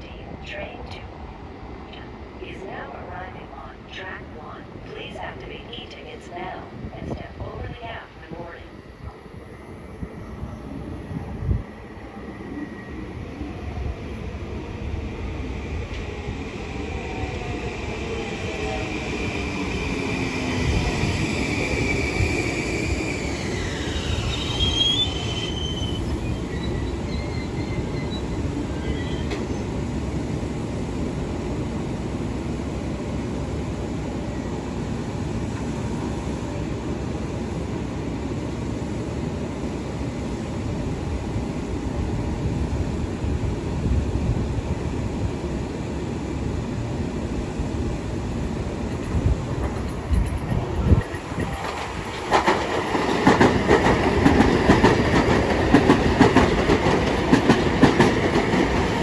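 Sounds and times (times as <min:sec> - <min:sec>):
train wheels rumbling on rail: 0:09.0 - 0:34.2, 0:40.1 - 0:59.0
high wheel squeals: 0:23.2 - 0:29.6.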